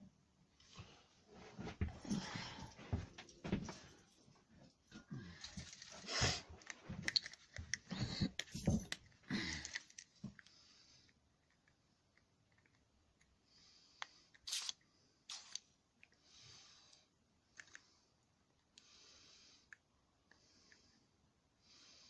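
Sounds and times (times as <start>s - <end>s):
small parts clicking and tapping: 6.6s - 10.5s, 11.1s - 13.4s, 17.5s - 18.8s
aerosol spray hissing: 14.5s - 15.6s.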